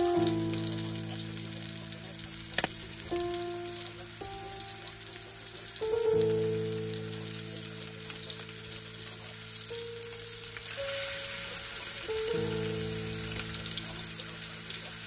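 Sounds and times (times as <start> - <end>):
meat patties sizzling in oil: 0.0 - 15.0
music of long held notes: 0.0 - 15.0.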